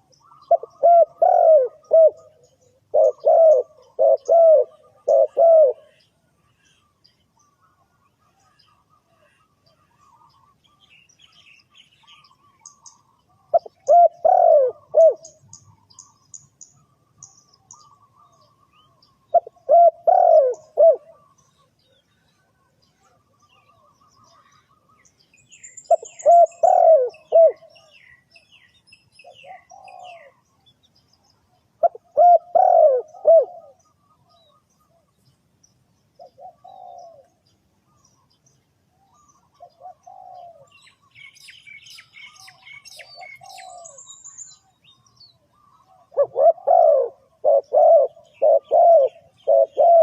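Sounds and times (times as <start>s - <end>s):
dove cooing: 0.0s - 6.1s, 12.0s - 25.0s, 25.9s - 28.2s, 29.2s - 30.6s, 31.8s - 35.2s, 36.2s - 38.0s, 39.0s - 44.6s, 45.4s - 50.0s
small birds chirping: 0.0s - 50.0s.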